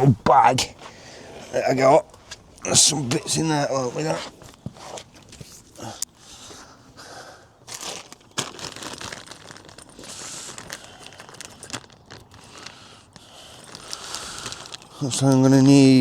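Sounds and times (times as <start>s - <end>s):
plastic bag crinkling: 7.6s - 16.0s.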